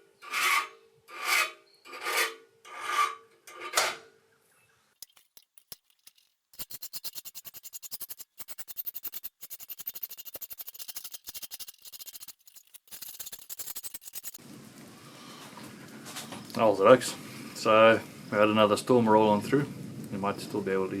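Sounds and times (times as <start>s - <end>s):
fast even ticking: 5.0s - 14.4s
file rasping on steel: 6.6s - 14.4s.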